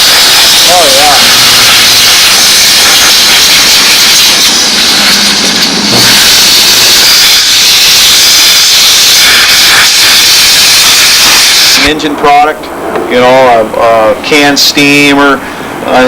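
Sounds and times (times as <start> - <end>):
steam cleaner hissing: 0.0 - 11.9.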